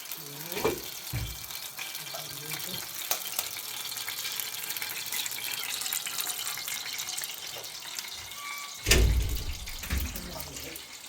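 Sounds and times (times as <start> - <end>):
water running and splashing: 0.0 - 8.2, 8.8 - 11.0
loud low thump: 8.9 - 10.2.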